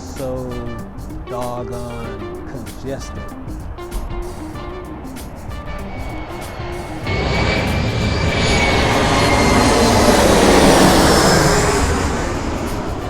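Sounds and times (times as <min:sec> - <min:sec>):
jet airliner passing overhead: 0:03.2 - 0:13.0
high whine falling in pitch: 0:03.9 - 0:13.0.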